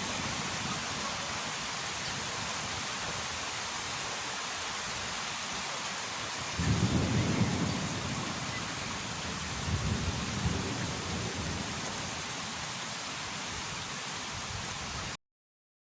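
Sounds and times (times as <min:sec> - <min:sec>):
heavy rain: 0:00.0 - 0:15.2
low thunder rumbling: 0:06.5 - 0:12.3.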